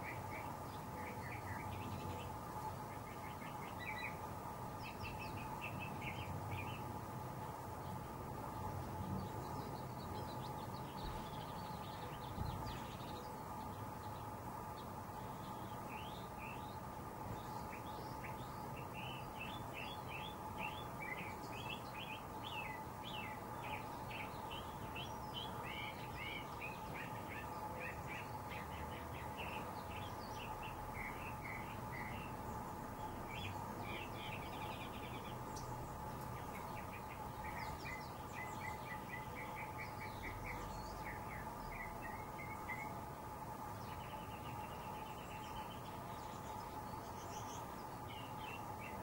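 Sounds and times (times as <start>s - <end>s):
small birds chirping: 0.0s - 49.0s
steady background hum: 0.0s - 49.0s.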